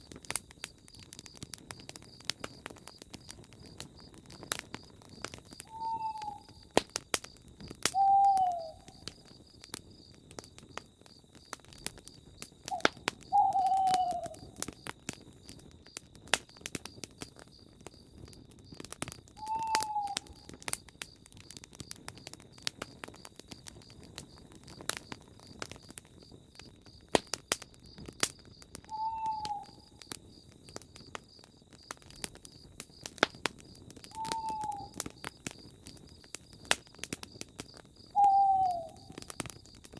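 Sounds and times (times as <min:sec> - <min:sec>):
campfire crackling: 0:00.0 - 0:39.9
owl hooting: 0:05.6 - 0:06.6, 0:08.0 - 0:09.0, 0:12.7 - 0:14.5, 0:19.4 - 0:20.5, 0:28.9 - 0:29.9, 0:34.2 - 0:35.0, 0:38.2 - 0:39.2
high insect trill: 0:08.0 - 0:10.1, 0:10.8 - 0:16.0.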